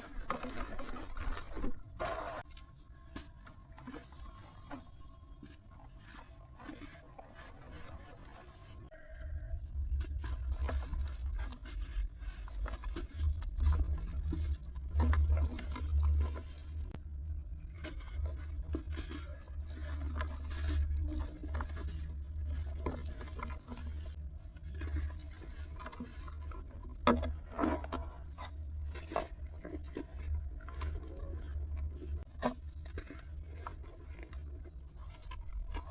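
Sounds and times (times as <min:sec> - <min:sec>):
brittle material crunching: 0:00.0 - 0:35.9
steady low rumble: 0:08.9 - 0:26.8.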